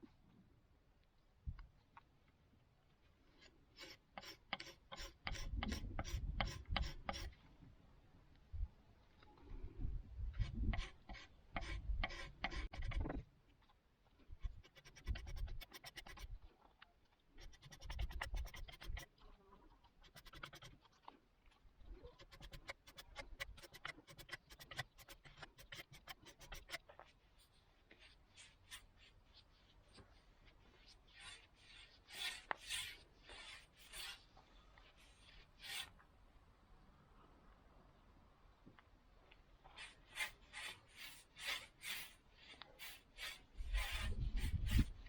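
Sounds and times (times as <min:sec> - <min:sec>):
hand rubbing wood: 0:14.4 - 0:16.4, 0:17.4 - 0:19.1, 0:20.0 - 0:20.9, 0:22.0 - 0:34.4
hand scraping wooden frame: 0:17.4 - 0:19.1, 0:20.0 - 0:20.8, 0:22.0 - 0:26.9.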